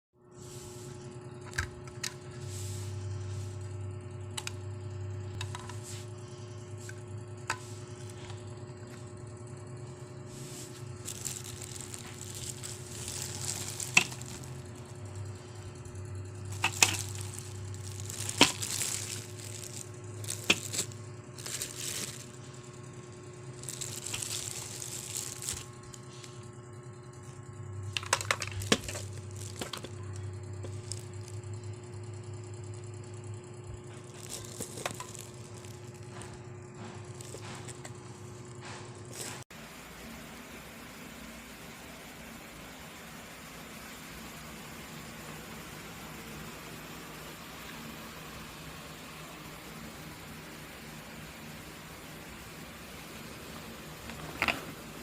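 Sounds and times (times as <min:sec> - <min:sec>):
steady low hum: 0:00.2 - 0:55.0
rustling of handling: 0:10.3 - 0:14.8, 0:16.4 - 0:22.6, 0:23.5 - 0:26.4, 0:27.9 - 0:31.4, 0:33.9 - 0:39.4.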